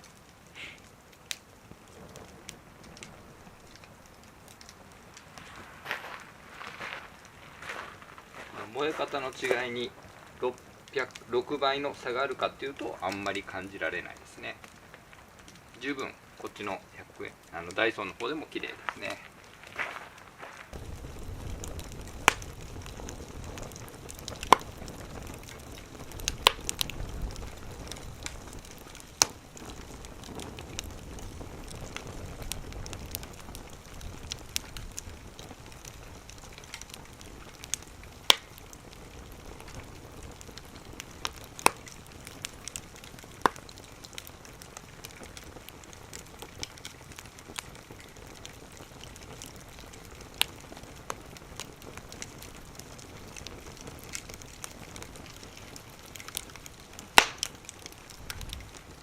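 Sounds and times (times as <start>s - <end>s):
wood fire hissing and crackling: 0.0s - 59.0s.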